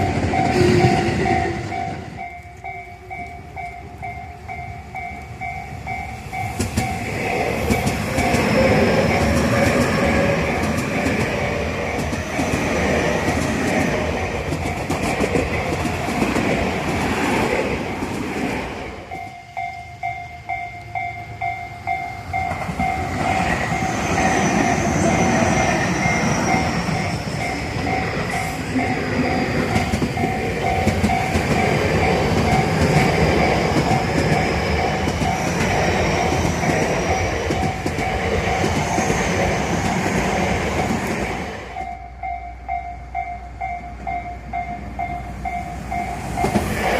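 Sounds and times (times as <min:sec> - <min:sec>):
level-crossing alarm bell: 0:00.0 - 0:12.6, 0:19.0 - 0:39.8, 0:40.7 - 0:46.8
electric train running: 0:00.0 - 0:42.8, 0:43.9 - 0:46.9
high train whine: 0:00.0 - 0:46.9
train wheel clatter: 0:06.2 - 0:19.2, 0:22.2 - 0:41.9, 0:45.5 - 0:46.9.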